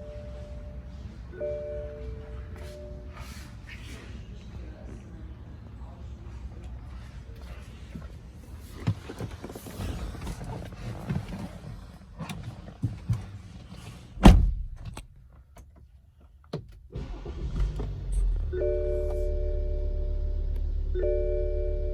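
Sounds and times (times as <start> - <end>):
loud thud: 14.2 - 14.8.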